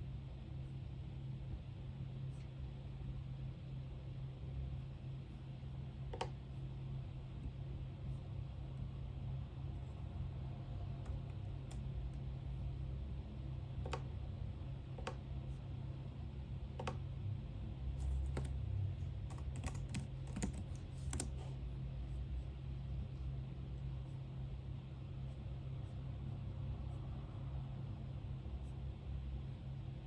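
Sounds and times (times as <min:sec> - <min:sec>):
computer keyboard typing: 0:06.1 - 0:06.4, 0:11.0 - 0:12.0, 0:13.7 - 0:14.2, 0:14.8 - 0:15.3, 0:16.7 - 0:17.1, 0:18.0 - 0:21.5.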